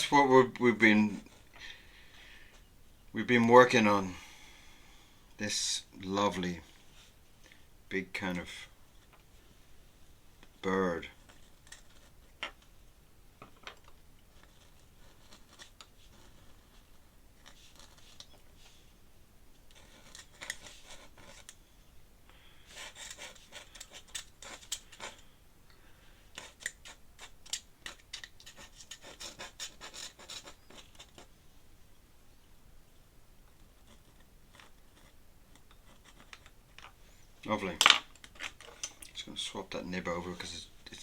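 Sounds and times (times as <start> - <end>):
pen nib scratching paper: 11.2 - 12.3, 14.3 - 18.8, 19.7 - 21.6, 22.7 - 25.3, 26.4 - 31.3, 33.6 - 36.6.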